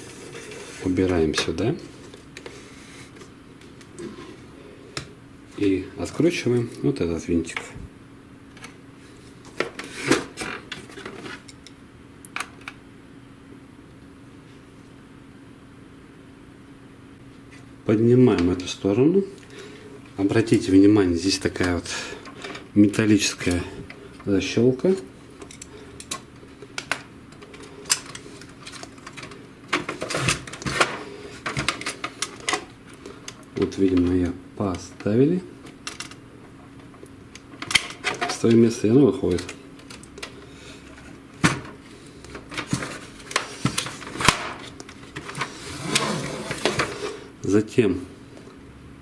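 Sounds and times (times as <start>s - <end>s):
light clicks and knocks of tools: 25.4s - 34.1s
printer parts clicking and rattling: 25.4s - 45.5s.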